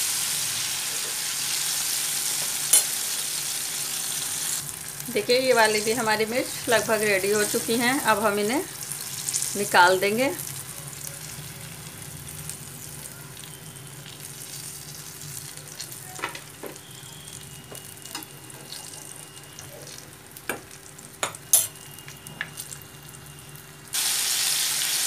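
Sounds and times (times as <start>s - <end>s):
chillies sizzling in oil: 0.0s - 25.0s
metal spoons scraping a pan: 21.2s - 21.8s.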